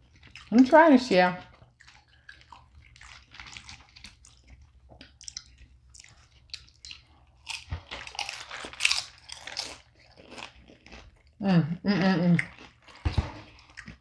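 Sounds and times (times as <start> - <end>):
crunchy food being chewed: 0.0 - 0.6, 1.4 - 11.4, 12.4 - 14.0.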